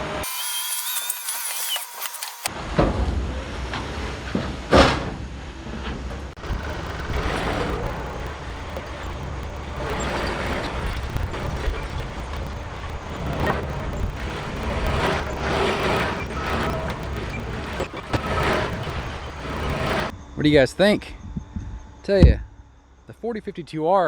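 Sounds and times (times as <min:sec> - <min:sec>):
box blade scraping dirt: 0:00.2 - 0:02.5, 0:06.4 - 0:20.1
tractor diesel engine running: 0:06.4 - 0:20.2.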